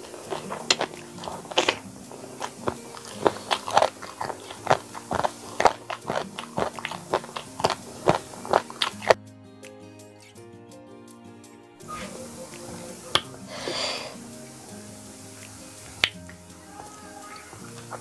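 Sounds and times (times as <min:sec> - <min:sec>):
person chewing with crunches: 0:00.0 - 0:09.2.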